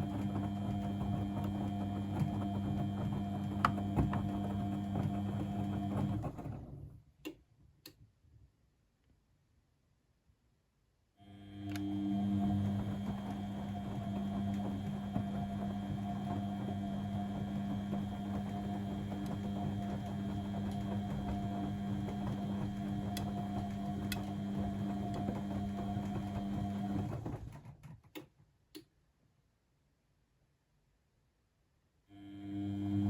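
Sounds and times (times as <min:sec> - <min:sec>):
washing machine motor hum: 0:00.0 - 0:07.0, 0:11.2 - 0:27.7, 0:32.2 - 0:33.0.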